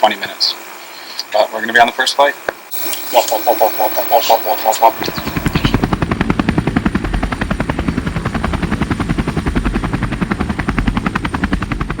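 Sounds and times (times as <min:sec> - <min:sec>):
helicopter rotor blades chopping: 0:02.7 - 0:12.0.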